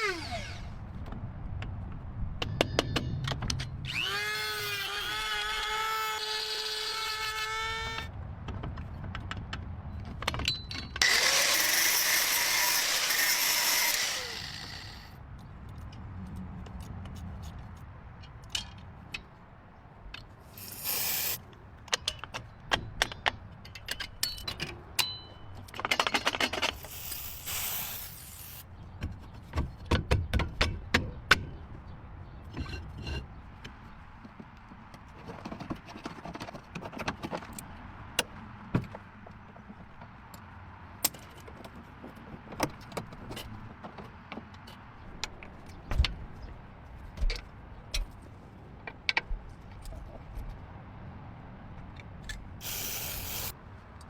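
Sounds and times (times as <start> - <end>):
metal tools knocking and clinking: 10.2 - 11.0
air hiss: 20.6 - 21.4, 26.9 - 28.6, 52.6 - 53.6.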